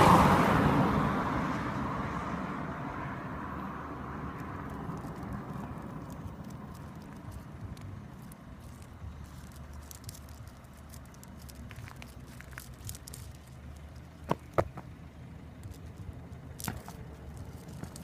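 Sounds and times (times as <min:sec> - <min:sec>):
steady low rumble: 0:00.8 - 0:18.0.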